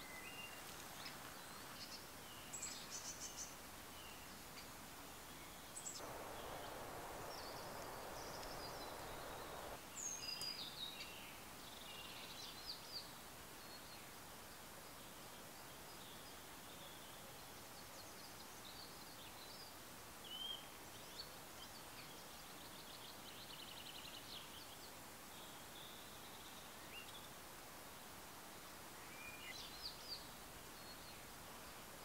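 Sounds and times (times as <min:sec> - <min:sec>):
steady hiss: 0:00.0 - 0:32.0
faint bird calls: 0:05.9 - 0:09.8.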